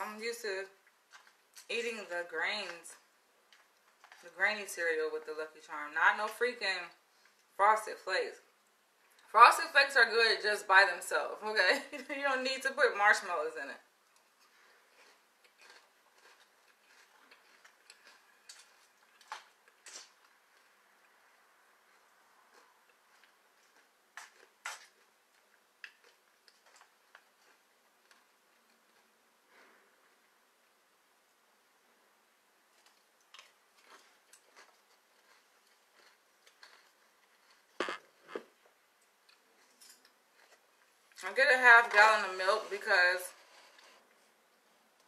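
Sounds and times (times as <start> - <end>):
spoon clicks and cereal crunches: 15.0 - 20.3, 32.8 - 38.0.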